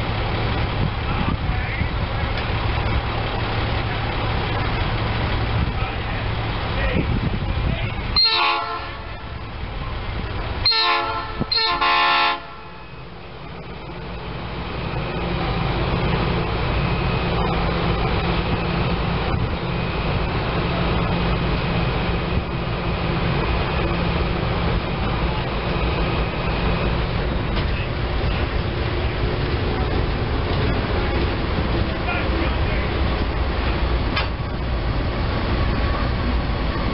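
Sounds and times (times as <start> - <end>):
train rolling past: 0.0 - 36.9
train horn blasts: 8.2 - 9.4, 10.6 - 12.9.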